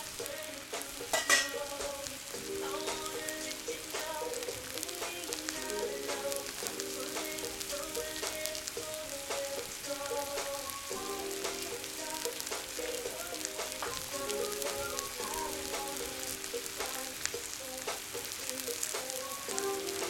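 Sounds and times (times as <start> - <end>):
background music: 0.0 - 20.0
food sizzling in hot oil: 0.0 - 20.0.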